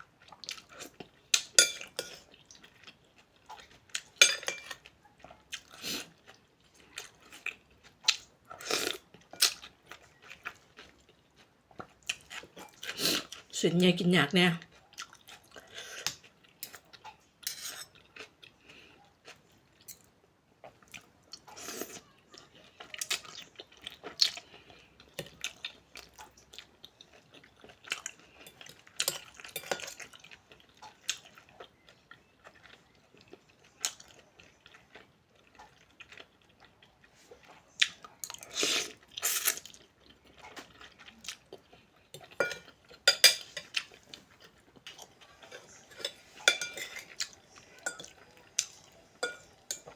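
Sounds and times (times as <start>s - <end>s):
cutlery clinking against bowl: 1.4s - 2.2s, 4.2s - 4.8s, 17.4s - 18.0s, 28.5s - 30.0s, 42.2s - 43.8s, 45.4s - 49.9s
person chewing: 14.7s - 17.3s, 20.6s - 49.9s.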